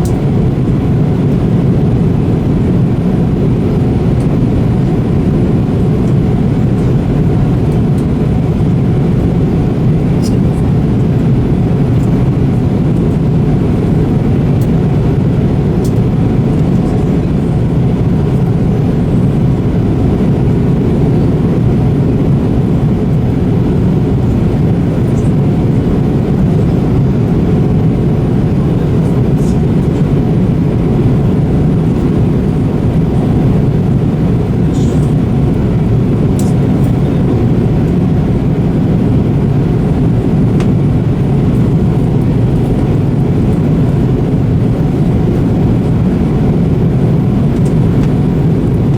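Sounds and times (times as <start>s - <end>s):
jet engines in airliner cabin: 0.0s - 48.9s.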